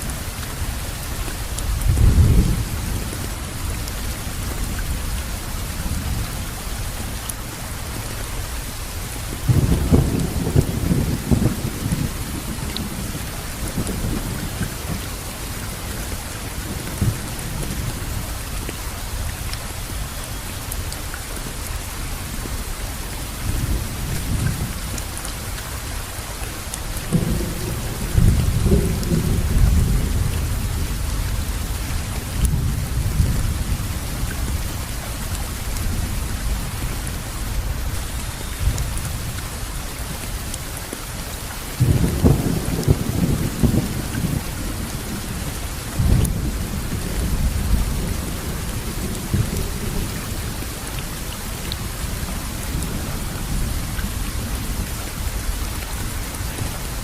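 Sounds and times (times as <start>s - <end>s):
steady rain falling: 0.0s - 57.0s
thunder rumbling: 9.3s - 18.4s, 26.9s - 39.3s, 41.8s - 57.0s.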